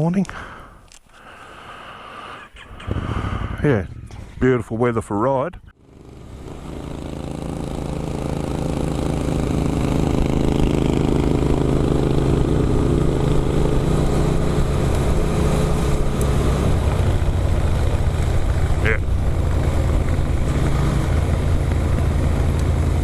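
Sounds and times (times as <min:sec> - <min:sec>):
motorcycle engine running: 0:05.8 - 0:23.0.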